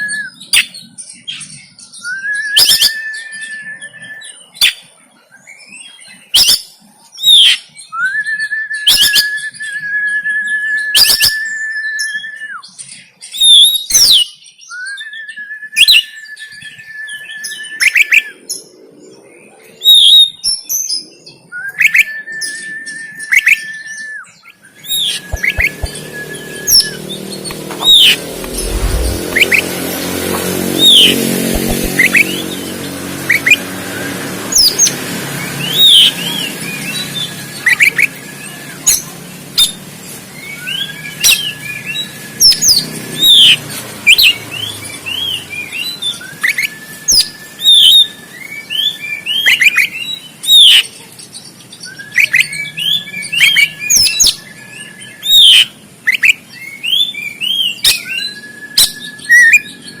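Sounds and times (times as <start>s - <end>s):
bird singing sharp whistled notes: 0.0s - 4.8s, 7.2s - 18.4s, 19.8s - 32.6s, 40.4s - 50.8s, 51.8s - 60.0s
long level bird whistle: 0.0s - 30.1s, 33.2s - 39.8s, 40.4s - 50.9s, 51.5s - 60.0s.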